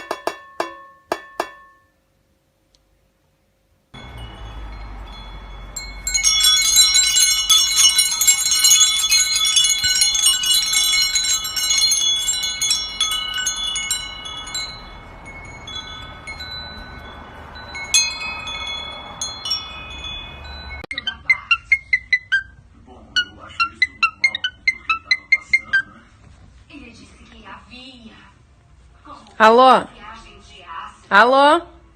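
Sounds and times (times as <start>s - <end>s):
metal wind chimes jangling: 4.0s - 20.9s.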